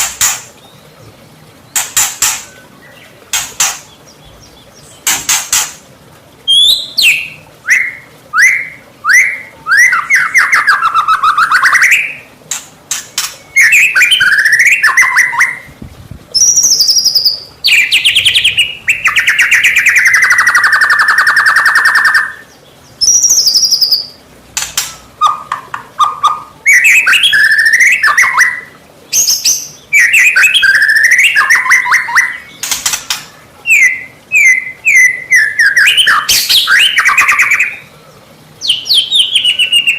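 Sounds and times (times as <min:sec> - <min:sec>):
bird singing fast trills: 0:06.5 - 0:12.3, 0:12.9 - 0:15.7, 0:16.4 - 0:37.9, 0:38.6 - 0:39.9.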